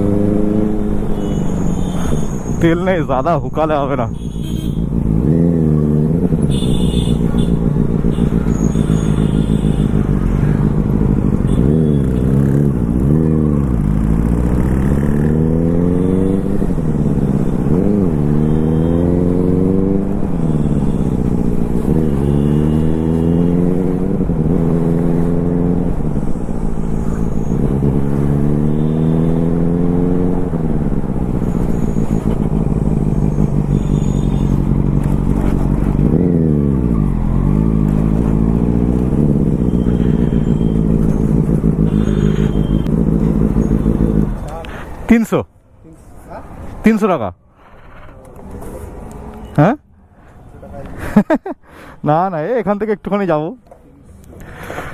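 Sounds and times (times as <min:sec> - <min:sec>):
motorbike engine accelerating: 0:00.0 - 0:02.8, 0:03.6 - 0:45.0.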